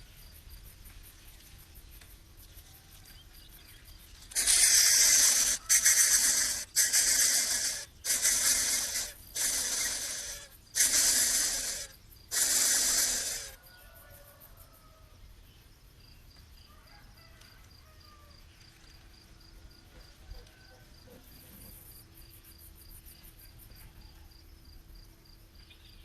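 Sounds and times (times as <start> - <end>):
faint crickets chirping: 0.0 - 26.0
bird chick hissing: 4.3 - 13.6.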